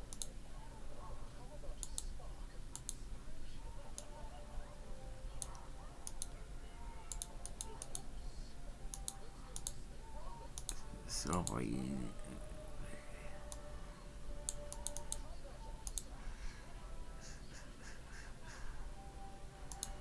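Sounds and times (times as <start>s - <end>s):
faint steady hum: 0.0s - 20.0s
sharp light clicks: 0.1s - 0.4s, 2.7s - 3.0s, 5.4s - 6.3s, 7.1s - 8.1s, 8.9s - 9.8s, 14.4s - 16.1s, 19.7s - 20.0s.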